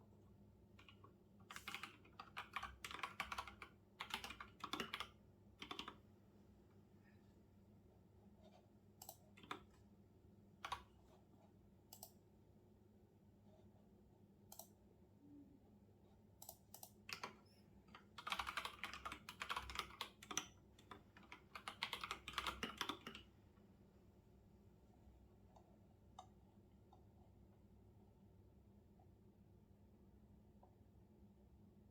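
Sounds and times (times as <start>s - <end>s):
typing on computer keyboard: 0.8s - 6.0s, 9.0s - 9.8s, 10.6s - 10.9s, 11.9s - 12.2s, 16.4s - 23.3s.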